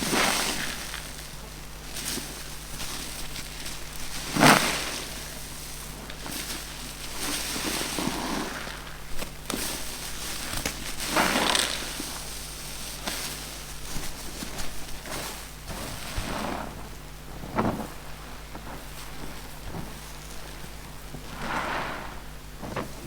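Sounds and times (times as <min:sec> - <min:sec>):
sponges squeezed crunchy squish: 0:07.3 - 0:13.4.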